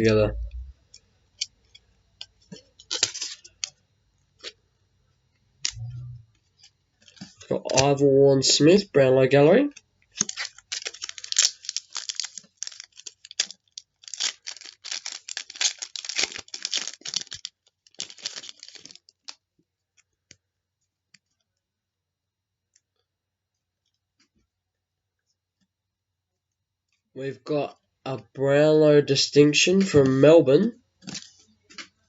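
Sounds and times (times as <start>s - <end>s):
card pack crinkling: 2.5s - 3.7s, 6.6s - 8.0s, 9.7s - 19.4s, 31.0s - 31.9s.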